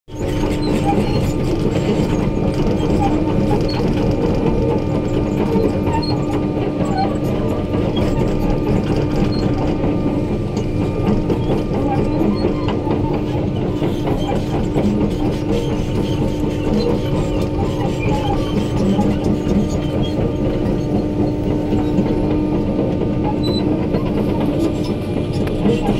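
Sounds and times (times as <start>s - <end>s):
clanks and clicks: 0.1s - 25.9s
diesel engine hum: 0.4s - 25.9s.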